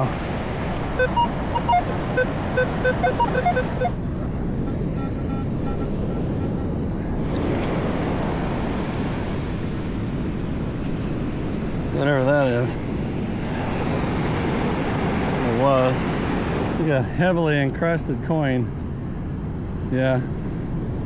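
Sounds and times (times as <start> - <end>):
surf: 0.0 - 4.0, 7.1 - 18.7
metal detector beeping: 0.8 - 4.0.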